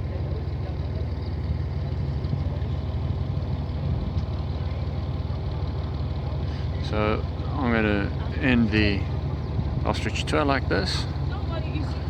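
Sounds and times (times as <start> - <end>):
tractor engine rumbling: 0.0 - 12.0.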